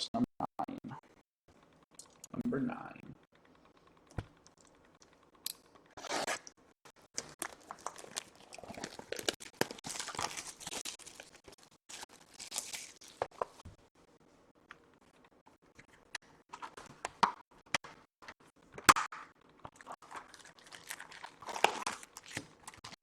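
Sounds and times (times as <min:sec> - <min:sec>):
packaging tearing and crinkling: 0:07.2 - 0:13.6, 0:20.0 - 0:23.0.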